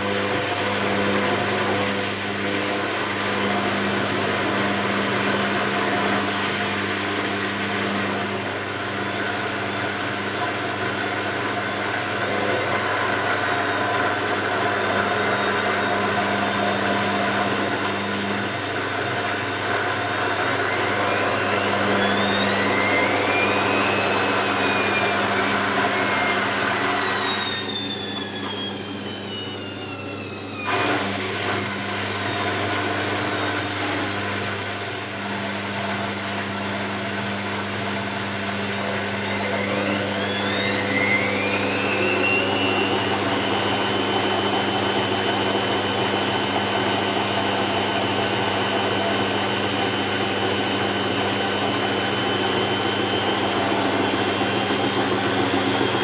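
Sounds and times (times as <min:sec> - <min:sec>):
washing machine drum motor whining: 0:11.3 - 0:34.4, 0:36.4 - 0:56.0.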